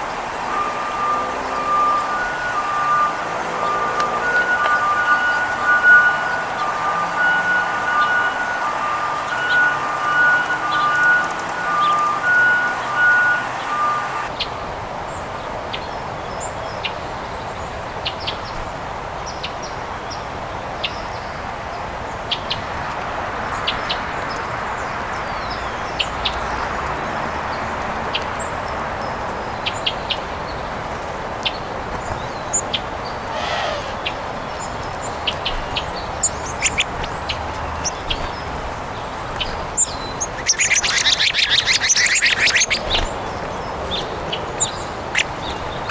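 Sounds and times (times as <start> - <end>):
songbirds chirping: 0.0 - 45.9
harsh loud bird calls: 32.0 - 45.9.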